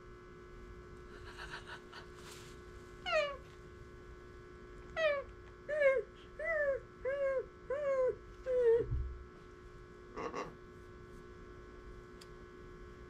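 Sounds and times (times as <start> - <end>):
parrot whining calls: 3.0 - 3.4, 5.0 - 8.9.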